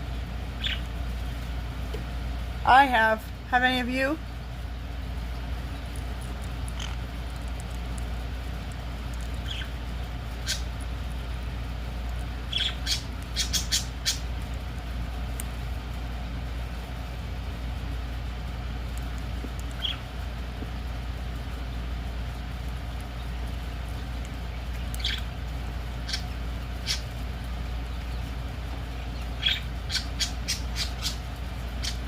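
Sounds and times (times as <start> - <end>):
low steady hum: 0.0 - 32.0
parrot chirping: 0.5 - 1.0, 5.7 - 7.1, 9.1 - 10.8, 12.4 - 14.4, 19.6 - 20.1, 24.5 - 27.2, 29.0 - 32.0.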